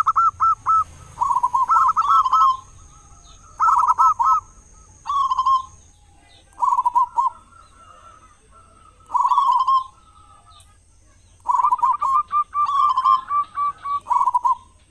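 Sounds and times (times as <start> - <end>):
dove cooing: 0.0 - 10.6, 11.2 - 14.9.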